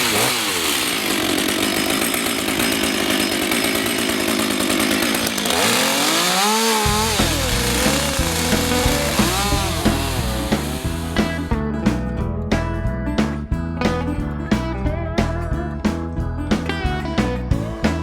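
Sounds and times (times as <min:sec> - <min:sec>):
chainsaw cutting wood: 0:00.0 - 0:11.5.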